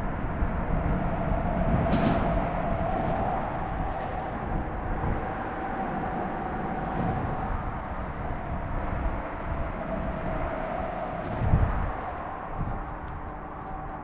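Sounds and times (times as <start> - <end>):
vehicle rumble: 0.0 - 14.0.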